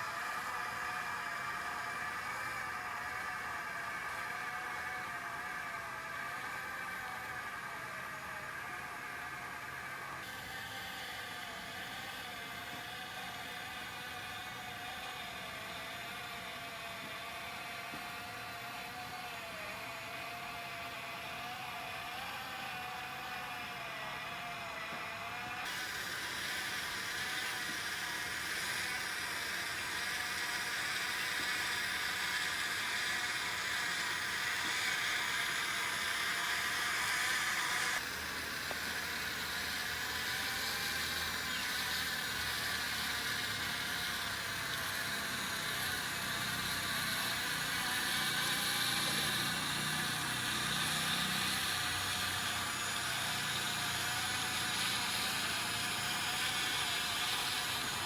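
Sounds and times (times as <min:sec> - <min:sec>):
small electric motors whirring: 0:00.0 - 0:58.0
hiss: 0:25.6 - 0:58.0.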